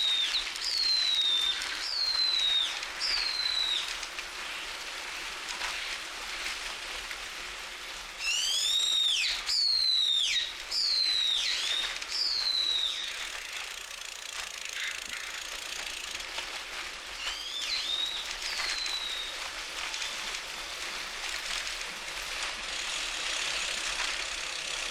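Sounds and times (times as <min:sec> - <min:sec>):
bird whistled calls: 0:00.0 - 0:03.9, 0:08.2 - 0:13.2, 0:17.2 - 0:19.4.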